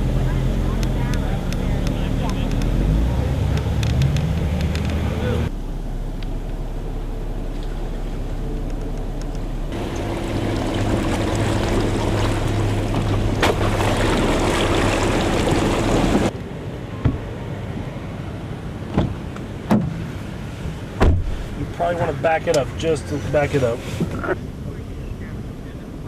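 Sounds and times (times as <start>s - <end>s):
truck engine pulling under load: 0.0s - 16.3s
water rushing splash: 9.7s - 16.3s.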